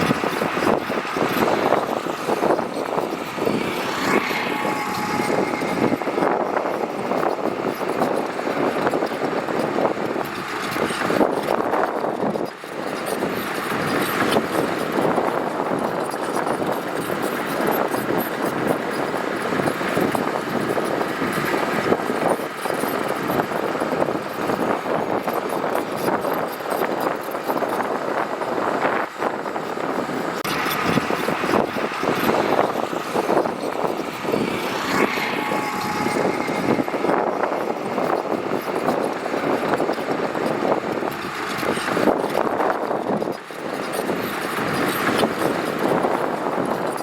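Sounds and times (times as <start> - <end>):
heavy diesel machinery running: 0.0 - 47.0.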